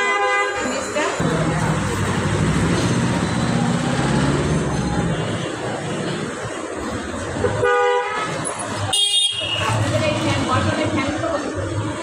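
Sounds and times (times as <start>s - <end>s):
traffic noise: 0.0s - 12.0s
vehicle horn blasts: 7.6s - 8.3s, 8.9s - 9.6s.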